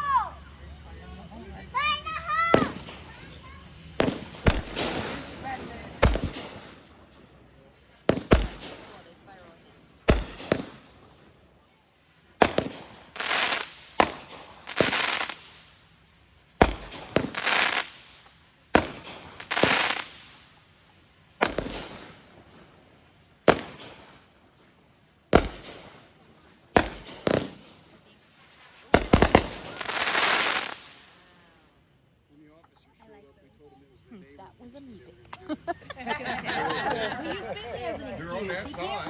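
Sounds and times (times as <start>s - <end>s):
fireworks bangs: 0.0s - 31.7s
hissing crackle: 1.8s - 31.8s.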